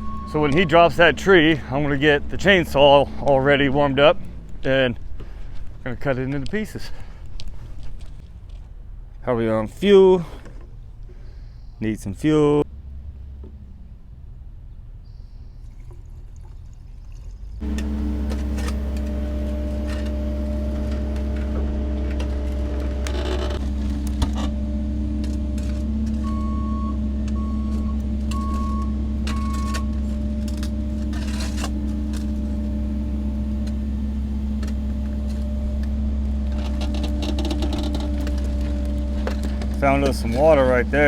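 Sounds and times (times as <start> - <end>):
short beeps: 0.0 - 1.0, 26.2 - 30.0
diesel engine running: 0.0 - 41.0.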